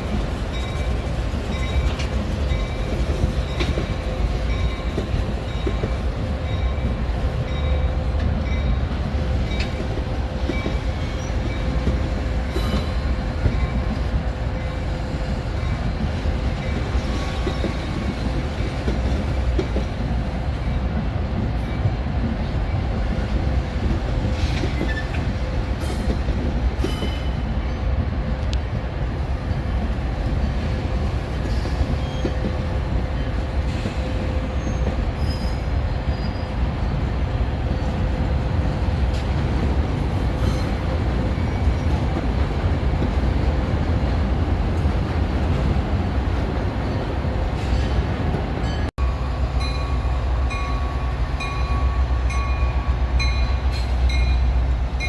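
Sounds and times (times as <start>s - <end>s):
train rolling on rails: 0.0s - 55.0s
wheel squeals: 33.8s - 36.6s.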